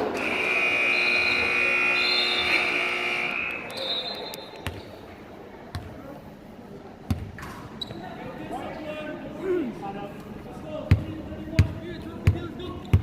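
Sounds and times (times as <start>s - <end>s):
scoreboard horn blast: 0.0s - 4.4s.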